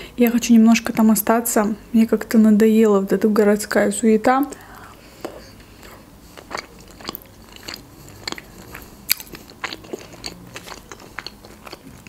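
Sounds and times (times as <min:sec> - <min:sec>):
person chewing food: 0:04.6 - 0:12.0.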